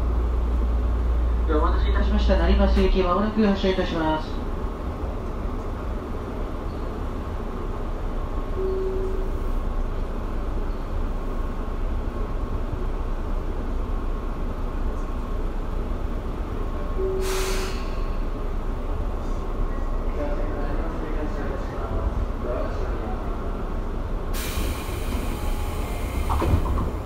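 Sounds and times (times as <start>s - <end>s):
train equipment humming: 0.0s - 27.0s
short low tone: 8.6s - 9.4s
sharp hiss of air: 17.2s - 18.2s, 24.4s - 26.4s.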